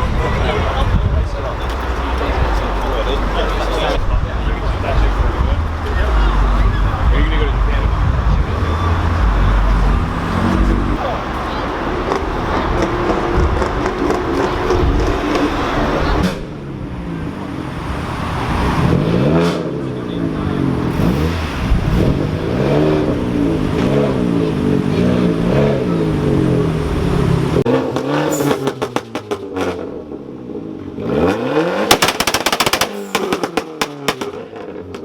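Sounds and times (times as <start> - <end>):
car engines revving: 0.0 - 35.0
sharp pops and cracks: 31.9 - 34.4.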